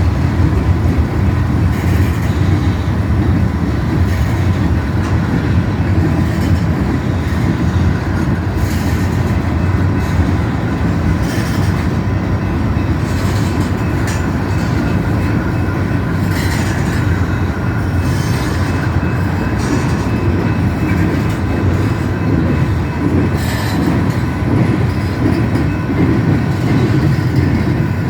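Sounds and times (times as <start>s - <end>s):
freight train rumbling past: 0.0s - 28.0s.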